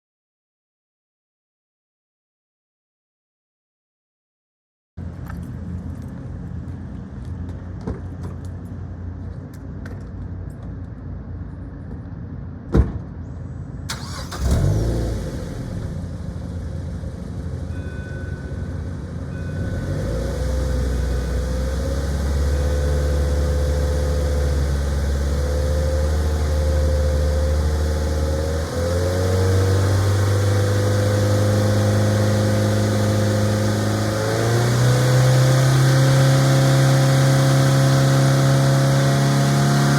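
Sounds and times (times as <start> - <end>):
car engine held at high revs: 13.9 - 16.2, 19.6 - 39.9
car engine starting: 13.9 - 17.8, 18.5 - 39.9
car engine idling: 13.9 - 28.7.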